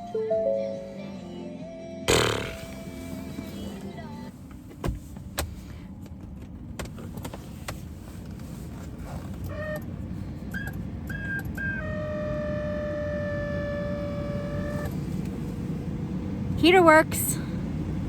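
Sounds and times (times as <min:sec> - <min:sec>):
dashboard warning beeps: 0:10.5 - 0:14.9.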